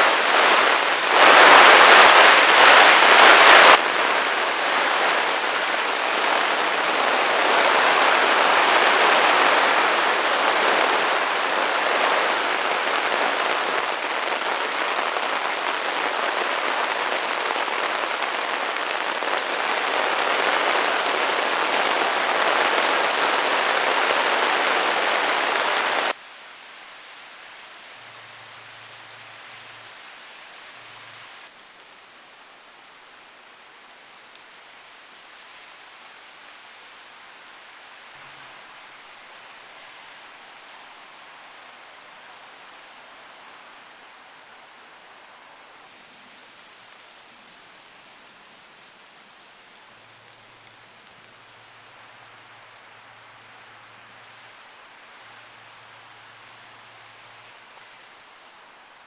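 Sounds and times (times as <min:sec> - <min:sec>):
heavy rain pouring: 0:00.0 - 0:26.2
faint hiss: 0:00.0 - 0:59.0.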